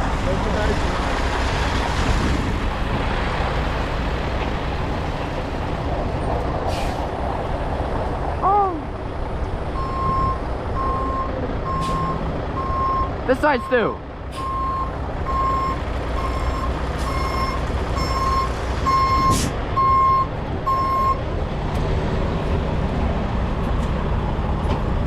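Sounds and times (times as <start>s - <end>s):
heavy diesel equipment running: 0.0s - 25.0s
air brake hiss: 6.7s - 7.1s
reversing alarm beeping: 9.8s - 21.2s.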